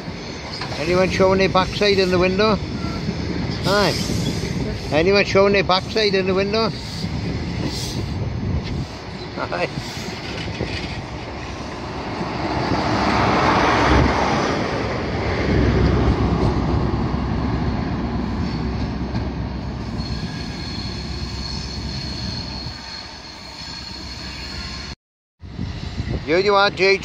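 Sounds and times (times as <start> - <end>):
train passing: 0.0 - 27.0
wheel squeal: 19.8 - 24.9.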